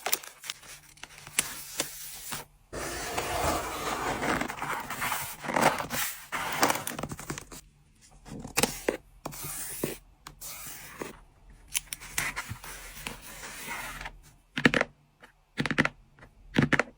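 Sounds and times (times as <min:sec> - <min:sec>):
packing materials rustling: 0:00.0 - 0:07.6.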